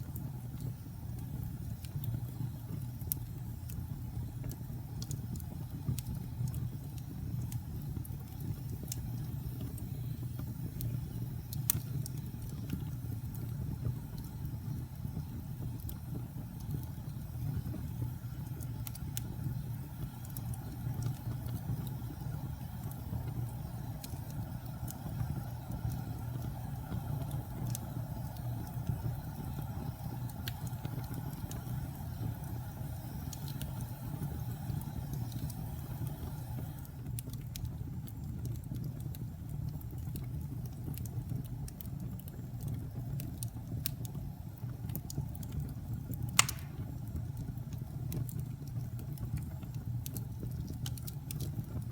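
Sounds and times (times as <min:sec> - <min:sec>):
low rumble of fire: 0:00.0 - 0:51.9
sharp pops from fire: 0:00.0 - 0:51.9
wood fire crackling: 0:00.0 - 0:51.9.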